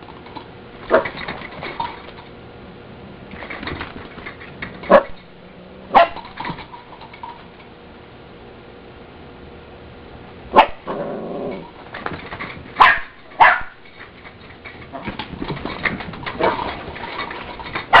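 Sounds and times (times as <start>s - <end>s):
puppies barking: 5.9s - 6.3s, 10.6s - 10.9s, 12.8s - 13.8s.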